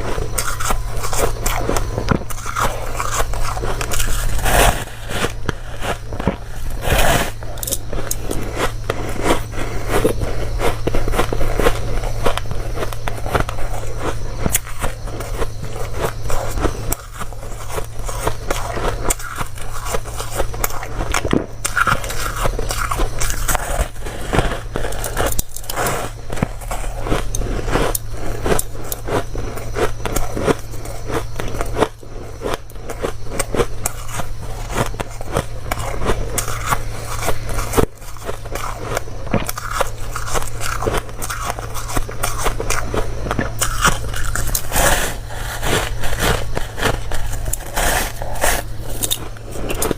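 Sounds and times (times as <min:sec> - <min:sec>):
person chewing crunchy ice: 0:00.0 - 0:49.9
steady low hum: 0:00.0 - 0:49.9.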